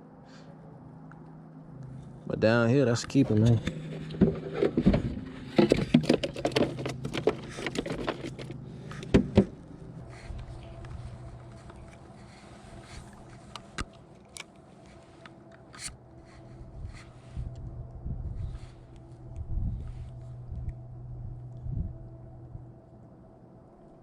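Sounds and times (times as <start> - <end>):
steady hum: 0.0 - 24.0
fishing gear knocking and scraping: 3.0 - 14.4.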